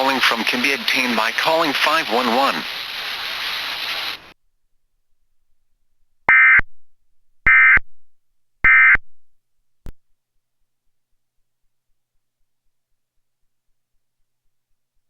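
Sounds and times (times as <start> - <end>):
radio static: 0.0 - 4.3.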